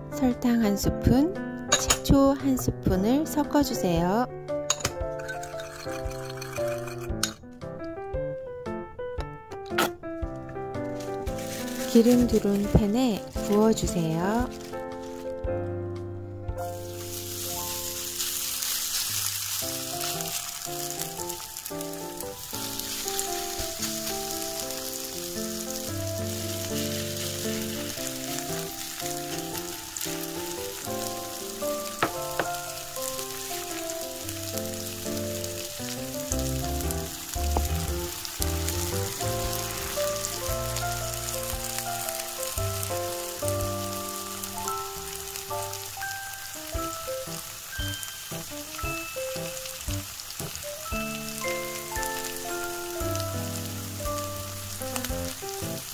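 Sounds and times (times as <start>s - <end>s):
background music: 0.0s - 55.9s
potato frying in hot oil: 11.0s - 15.3s, 16.6s - 55.9s.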